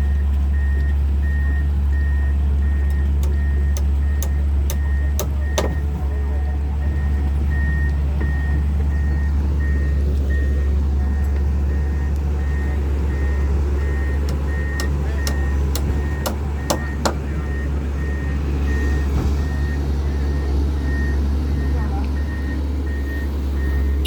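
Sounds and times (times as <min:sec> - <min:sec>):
excavator diesel engine droning: 0:00.0 - 0:24.0
sharp metallic clicks: 0:02.8 - 0:06.1, 0:13.8 - 0:17.6
high travel alarm beep: 0:06.9 - 0:19.0.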